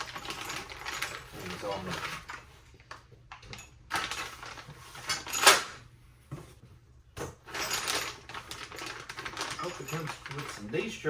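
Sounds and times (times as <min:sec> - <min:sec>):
cardboard packaging rustling: 0:08.2 - 0:10.7.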